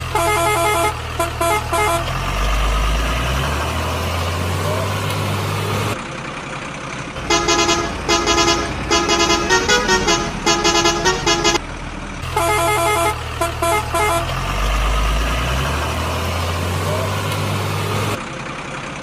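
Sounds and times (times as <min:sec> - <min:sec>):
musical truck horn beeps: 0:00.0 - 0:02.4, 0:07.2 - 0:11.6, 0:12.2 - 0:16.0
low engine hum: 0:00.0 - 0:19.0.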